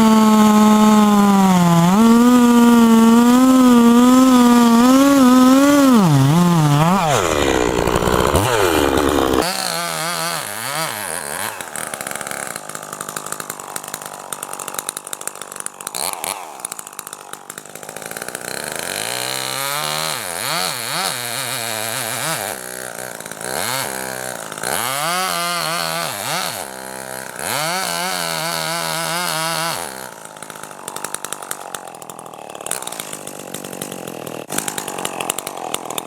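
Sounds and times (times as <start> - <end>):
chainsaw engine revving: 0.0 - 36.0.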